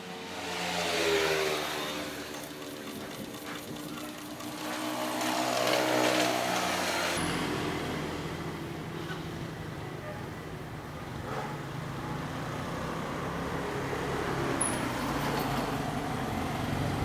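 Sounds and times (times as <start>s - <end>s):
sewing machine running: 1.2s - 8.3s.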